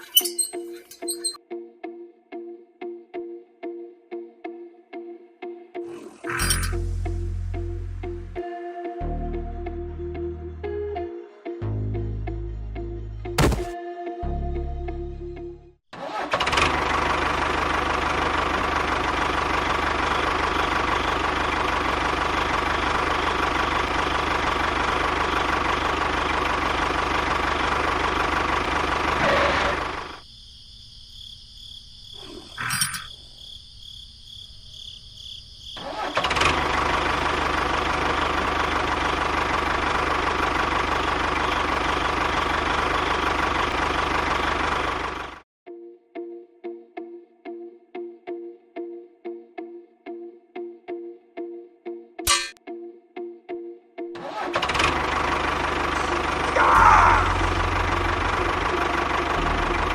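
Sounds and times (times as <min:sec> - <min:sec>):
tractor engine running: 0:16.0 - 0:30.2, 0:35.8 - 0:45.4, 0:54.2 - 0:59.9.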